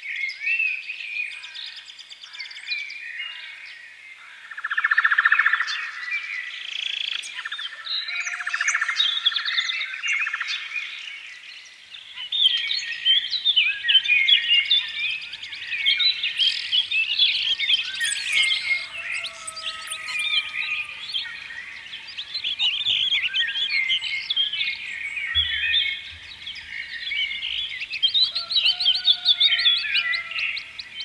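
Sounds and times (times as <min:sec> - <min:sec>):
birds chirping and trilling: 0:00.0 - 0:31.0.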